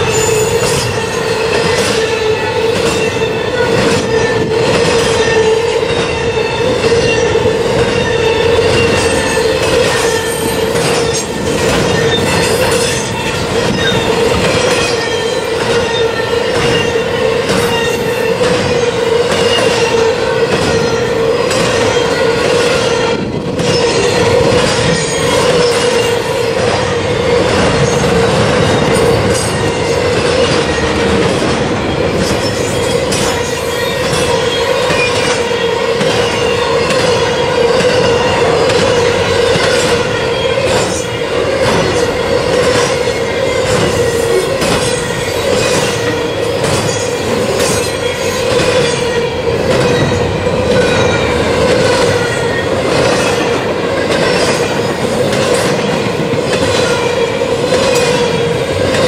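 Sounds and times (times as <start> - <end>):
high-pitched wheel squeals: 0.0 - 30.9
train rolling past: 0.0 - 59.0
train wheels clacking on rail joints: 0.0 - 59.0.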